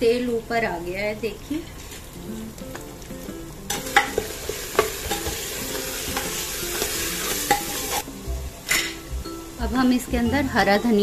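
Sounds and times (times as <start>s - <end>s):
minced meat sizzling in oil: 0.6s - 11.0s
metal ladle stirring: 1.8s - 8.0s
ladle clicking against pot: 3.7s - 8.0s.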